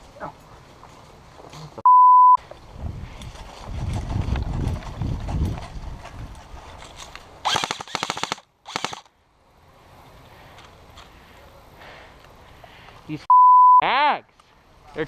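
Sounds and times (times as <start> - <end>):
airsoft gun firing full-auto: 7.4 - 9.1.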